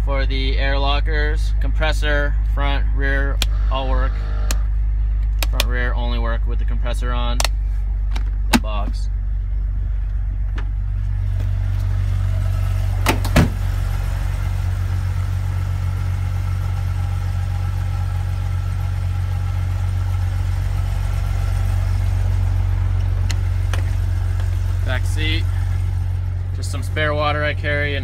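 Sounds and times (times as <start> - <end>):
car engine idling: 0.0 - 28.0
sharp engine knocks: 12.8 - 13.9, 22.9 - 24.9.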